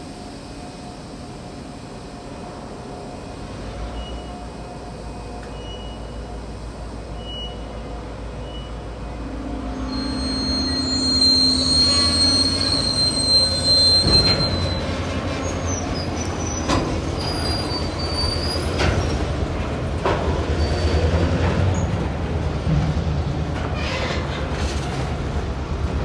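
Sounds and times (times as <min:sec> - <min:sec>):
train rumbling past: 0:00.0 - 0:26.0
steel wheel squeal: 0:09.8 - 0:19.3, 0:20.5 - 0:22.0, 0:23.7 - 0:25.1
wheels clacking over rail joints: 0:10.6 - 0:26.0.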